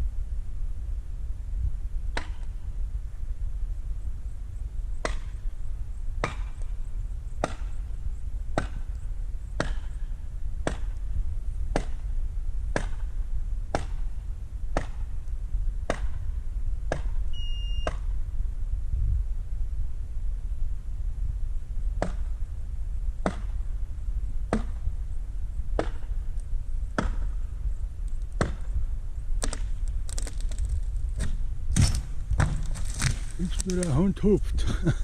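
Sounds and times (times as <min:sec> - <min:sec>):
steady low rumble: 0:00.0 - 0:35.0
tool striking wood: 0:07.4 - 0:07.7, 0:11.7 - 0:12.0, 0:23.2 - 0:23.5, 0:24.5 - 0:24.8, 0:31.2 - 0:33.9.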